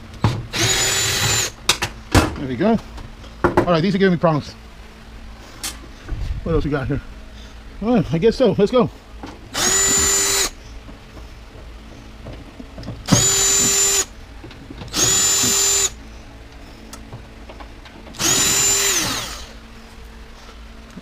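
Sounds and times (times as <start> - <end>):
power drill driving screws: 0.5 - 1.6, 9.6 - 10.6, 13.0 - 14.1, 14.9 - 16.0, 18.1 - 19.6.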